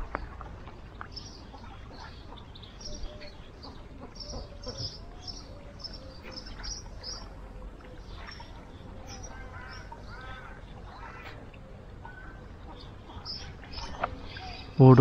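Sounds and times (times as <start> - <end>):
birds chirping: 0.0 - 15.0
low outdoor rumble: 0.0 - 15.0
quack-like bird calls: 9.0 - 14.8.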